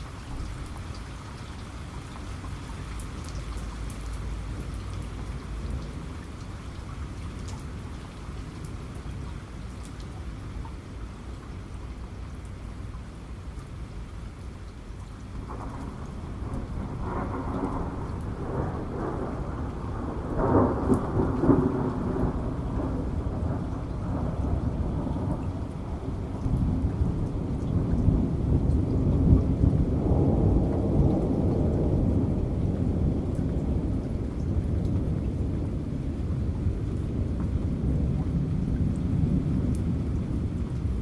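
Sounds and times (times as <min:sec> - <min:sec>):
heavy rain: 0:00.0 - 0:41.0
crackling thunder peal: 0:15.4 - 0:35.9
low thunder rumble: 0:15.4 - 0:41.0.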